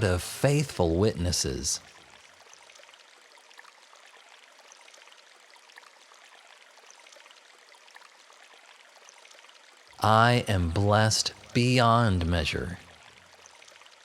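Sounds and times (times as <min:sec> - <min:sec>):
running water: 0:00.0 - 0:14.0.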